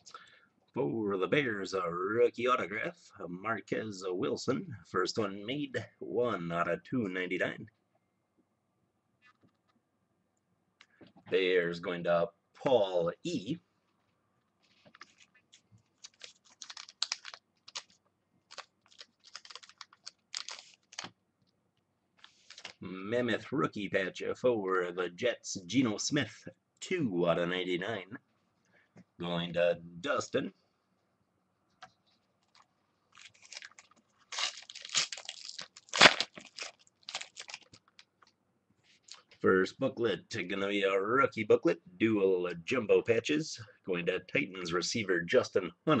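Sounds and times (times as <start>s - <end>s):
card pack wrapper crinkling: 14.8s - 21.1s, 22.2s - 22.8s, 32.4s - 38.3s.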